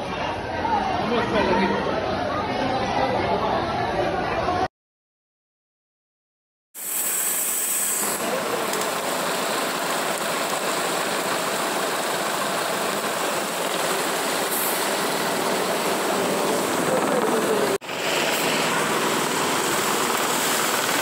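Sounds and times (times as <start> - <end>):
heavy rain: 8.0 - 21.0
rushing floodwater: 8.1 - 21.0.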